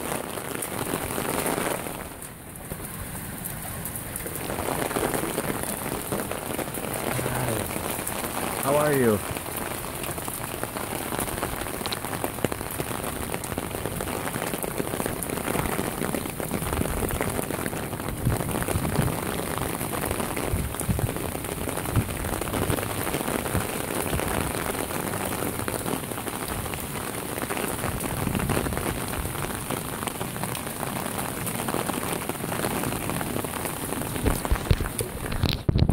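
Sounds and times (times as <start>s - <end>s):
heavy rain falling: 0.0s - 35.9s.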